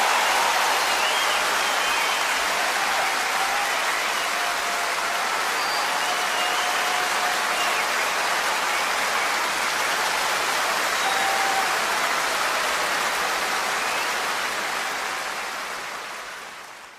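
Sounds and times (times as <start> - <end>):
whistles: 0.0 - 2.6, 3.6 - 4.5, 5.4 - 9.8, 10.9 - 11.7, 13.8 - 14.4
audience applauding: 0.0 - 16.9.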